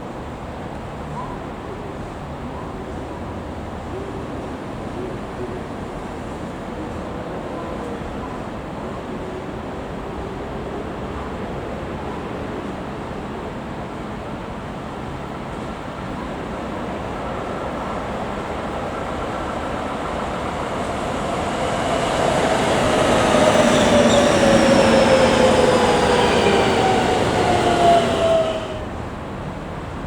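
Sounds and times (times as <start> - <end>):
electric train passing: 14.9 - 29.5.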